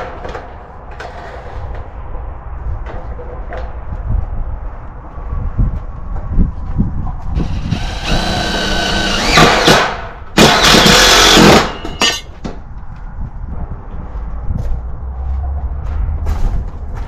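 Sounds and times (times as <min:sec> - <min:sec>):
power drill whining: 0:07.4 - 0:09.8, 0:10.4 - 0:12.0.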